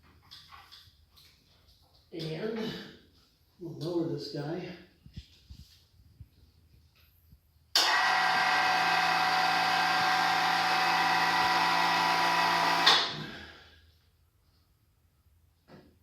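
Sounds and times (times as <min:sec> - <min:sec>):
hoist motor whine: 0:07.8 - 0:13.2.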